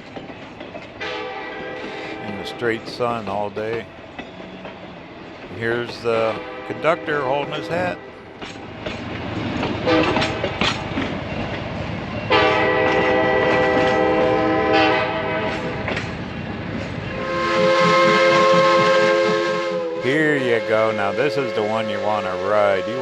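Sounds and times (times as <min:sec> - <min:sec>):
train wheels clicking on rail joints: 0:00.0 - 0:23.0
locomotive air horn blasts: 0:01.0 - 0:02.8, 0:06.0 - 0:08.2, 0:09.8 - 0:10.4, 0:12.3 - 0:15.8, 0:17.2 - 0:23.0.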